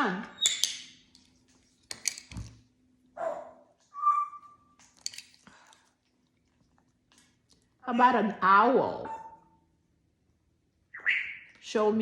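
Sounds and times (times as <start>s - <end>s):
parrot whistle: 3.9s - 4.6s, 10.9s - 11.5s.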